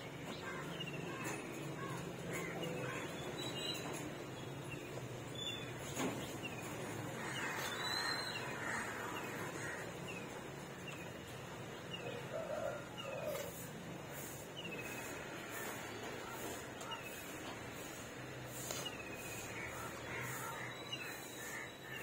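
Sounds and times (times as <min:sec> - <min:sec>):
small birds chirping: 0:00.3 - 0:22.0.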